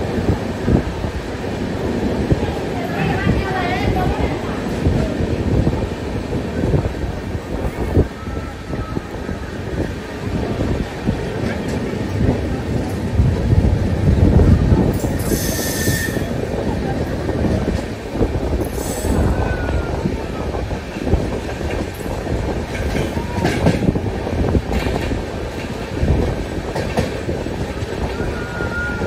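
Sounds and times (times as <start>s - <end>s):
train wheels rumbling on rail: 0.0s - 29.0s
clatter over rail joints: 20.9s - 27.9s.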